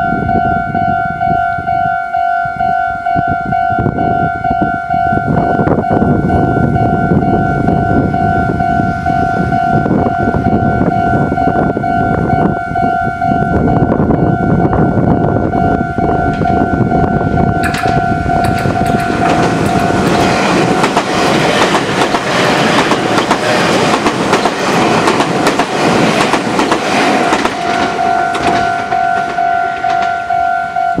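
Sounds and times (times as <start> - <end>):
electric train passing: 0.0 - 31.0
level crossing alarm pulses: 0.0 - 31.0
wheels clattering over rail joints: 17.6 - 30.4.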